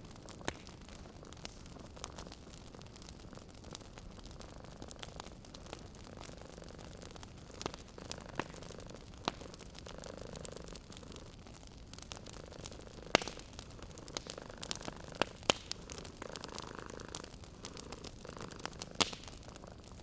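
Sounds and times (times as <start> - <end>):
wood fire crackling and popping: 0.0 - 20.0
cat purring: 6.0 - 20.0.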